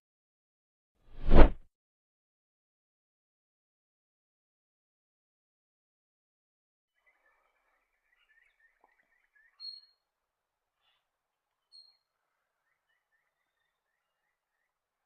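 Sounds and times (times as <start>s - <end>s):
bird chirping: 7.0s - 10.1s, 10.8s - 15.0s.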